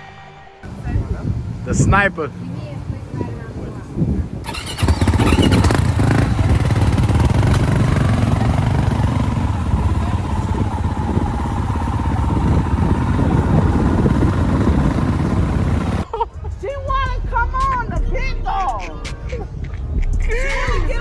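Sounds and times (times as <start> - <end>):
dirt bike engine running: 4.3 - 16.0.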